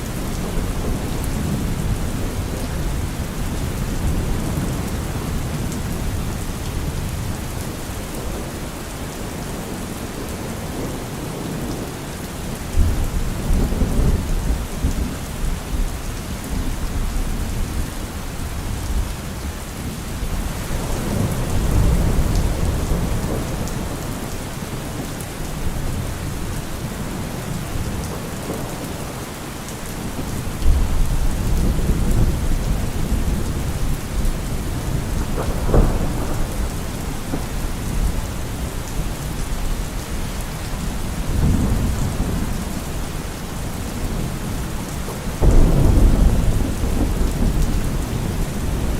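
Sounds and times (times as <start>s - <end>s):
thunder rumbling: 0.0s - 8.6s, 20.2s - 25.0s, 30.0s - 48.9s
steady rain: 0.0s - 48.9s.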